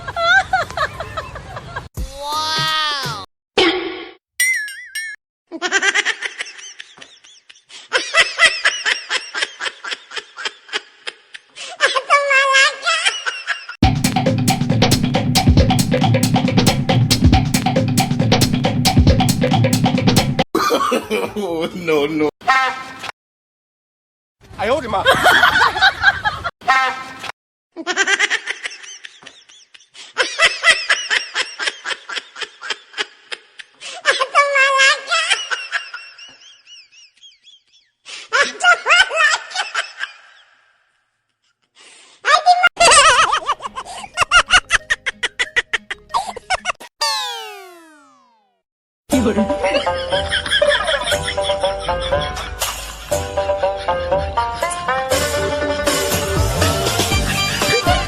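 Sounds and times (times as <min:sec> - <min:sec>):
laughter in rhythmic bursts: 0:00.0 - 0:01.9, 0:05.5 - 0:13.8, 0:20.6 - 0:21.8, 0:25.0 - 0:26.5, 0:27.8 - 0:40.7, 0:42.2 - 0:46.9, 0:49.2 - 0:54.9.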